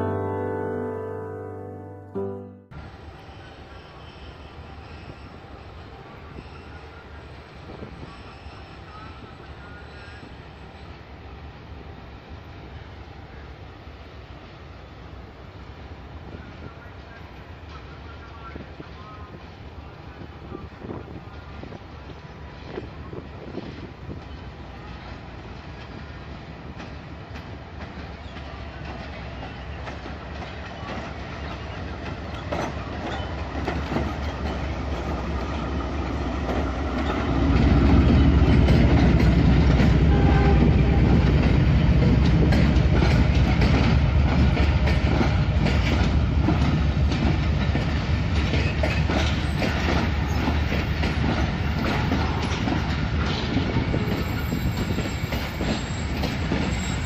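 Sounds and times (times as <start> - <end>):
diesel locomotive engine rumble: 2.7 - 57.0
train wheels clacking over rail joints: 24.1 - 57.0.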